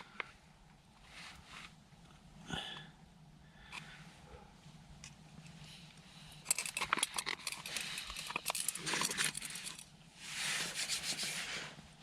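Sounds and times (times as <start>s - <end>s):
small clinks: 6.4s - 9.9s.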